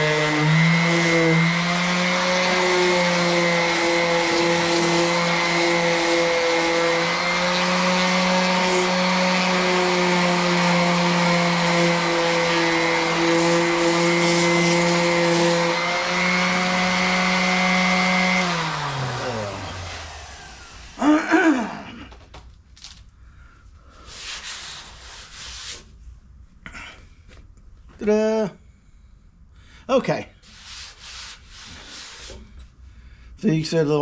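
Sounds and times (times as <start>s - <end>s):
electric sander whining: 0.0s - 21.2s.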